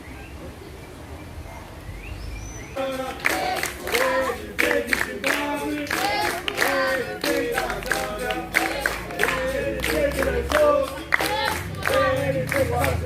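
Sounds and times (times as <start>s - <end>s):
group singing unaccompanied: 2.8s - 13.0s
rhythmic hand clapping: 2.8s - 13.0s.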